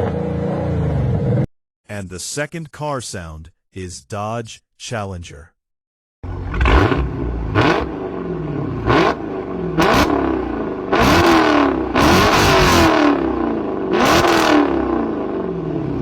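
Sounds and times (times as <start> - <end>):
car engine revving: 6.2 - 16.0.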